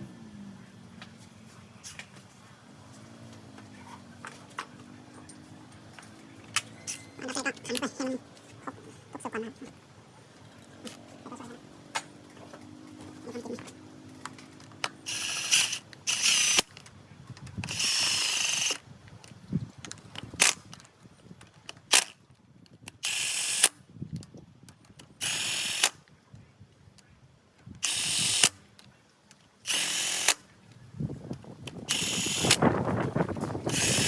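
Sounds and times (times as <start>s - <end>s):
sharp clicks: 14.2s - 22.2s, 22.8s - 26.0s, 27.7s - 30.4s, 31.3s - 32.8s
cordless impact wrench bursts: 15.0s - 16.7s, 17.7s - 18.8s, 23.0s - 23.8s, 25.2s - 26.0s, 27.8s - 28.6s, 29.6s - 30.4s, 31.8s - 32.6s, 33.7s - 34.0s.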